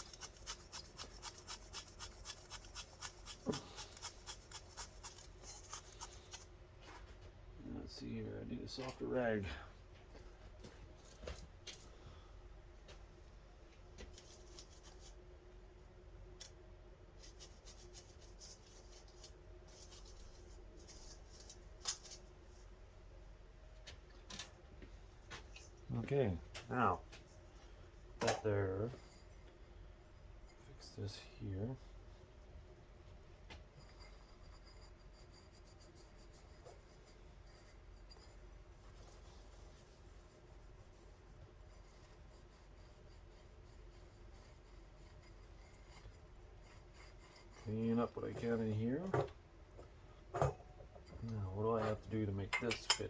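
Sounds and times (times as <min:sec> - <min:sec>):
rubbing and scratching: 0:00.0 - 0:07.2, 0:14.0 - 0:15.2, 0:16.4 - 0:22.6, 0:33.6 - 0:53.0
low steady hum: 0:00.0 - 0:53.0.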